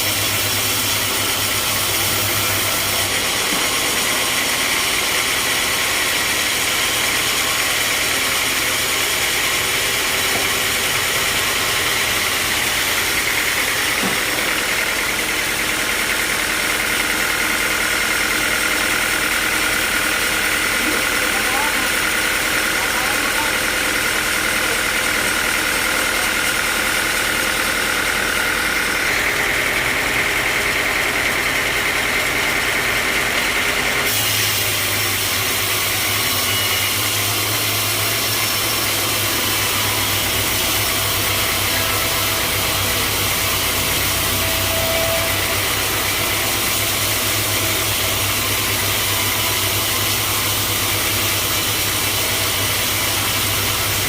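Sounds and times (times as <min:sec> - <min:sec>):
sawmill machinery running: 0:00.0 - 0:54.0
machinery rattle: 0:00.1 - 0:34.2, 0:36.9 - 0:54.0
deep steady hum: 0:37.9 - 0:54.0.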